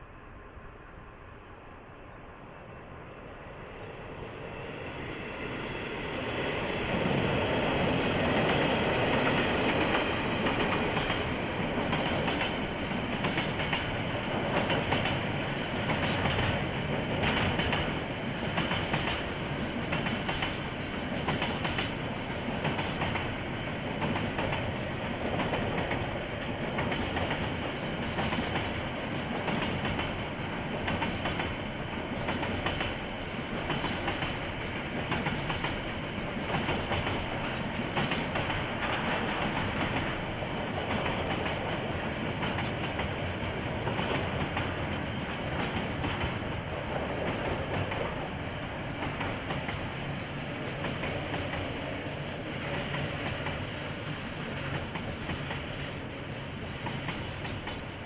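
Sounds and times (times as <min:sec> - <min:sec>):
train wheels clicking over rail joints: 0:07.9 - 0:31.6, 0:32.2 - 0:48.2.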